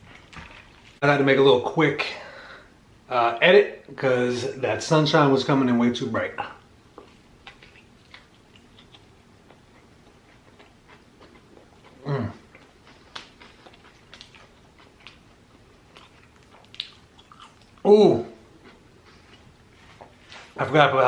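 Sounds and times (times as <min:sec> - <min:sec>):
person chewing food: 0:06.9 - 0:20.6.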